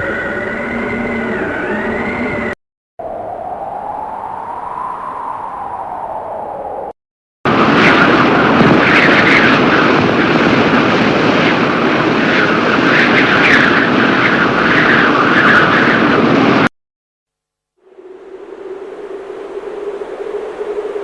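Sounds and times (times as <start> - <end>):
storm wind rushing: 0.0 - 16.7, 17.8 - 21.0.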